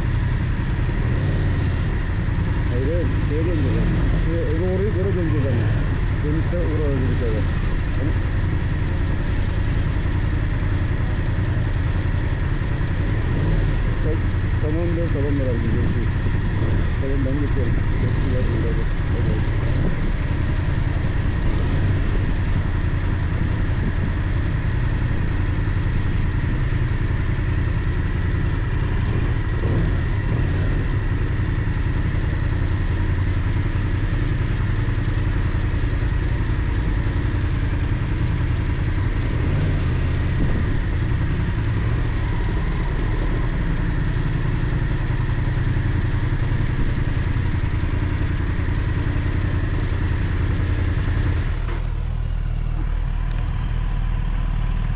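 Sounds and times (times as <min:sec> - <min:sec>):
motorcycle engine running: 0:00.0 - 0:54.9
road noise: 0:00.0 - 0:54.9.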